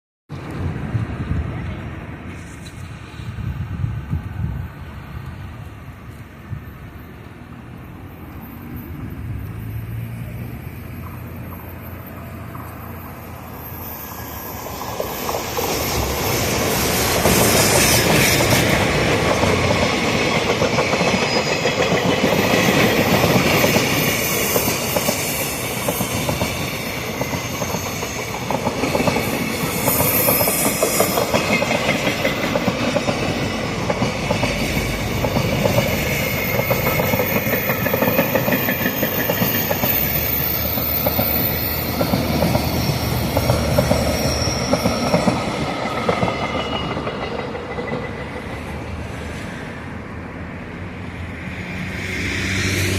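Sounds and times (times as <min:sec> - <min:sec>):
freight train passing: 0:00.3 - 0:52.9
wheels clattering over rail joints: 0:14.8 - 0:48.8.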